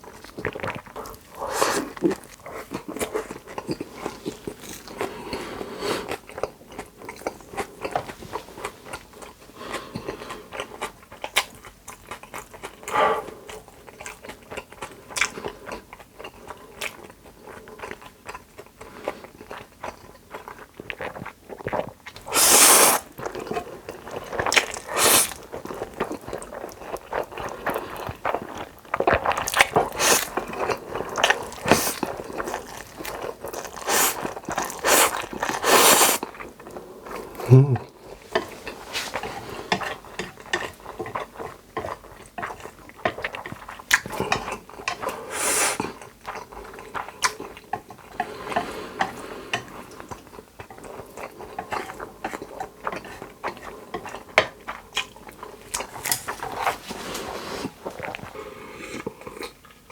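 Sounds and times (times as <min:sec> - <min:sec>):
crunchy bites and chewing: 0:24.2 - 0:36.3.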